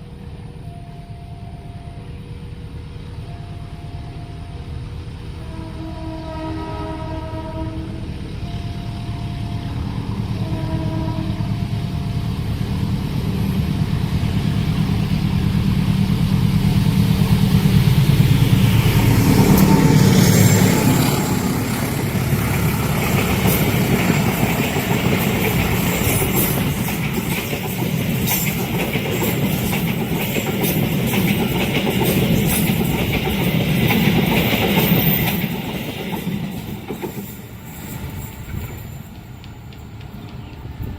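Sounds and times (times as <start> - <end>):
train horn blasts: 5.4 - 11.8
diesel engine drone: 7.9 - 25.0
train wheels clattering on rails: 11.5 - 40.9.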